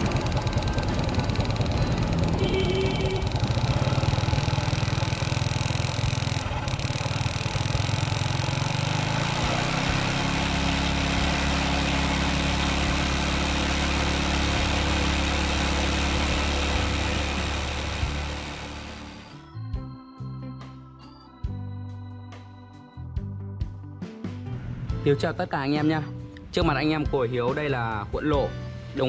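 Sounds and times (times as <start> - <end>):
small motorbike engine running: 0.0 - 19.4.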